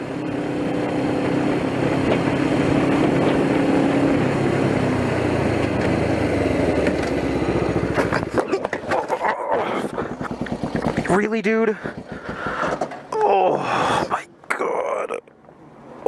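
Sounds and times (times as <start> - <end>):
motorcycle engine running: 0.0 - 13.1
road and wind noise: 0.0 - 16.0.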